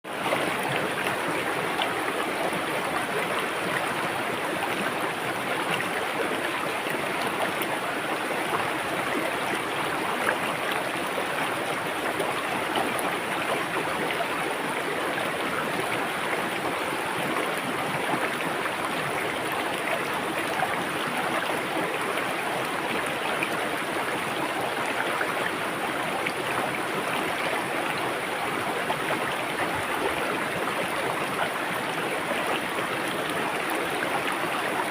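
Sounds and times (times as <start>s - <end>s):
river water babbling over rocks: 0.1s - 34.9s.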